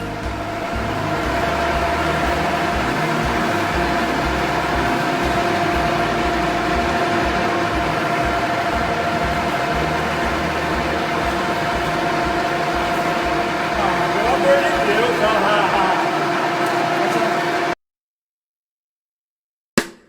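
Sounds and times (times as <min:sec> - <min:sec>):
machine humming with high whine: 0:00.0 - 0:17.8.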